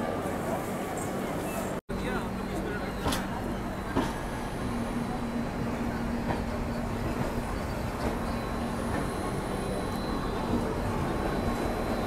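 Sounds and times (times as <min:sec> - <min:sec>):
train wheels rumbling on rails: 0:00.9 - 0:12.0.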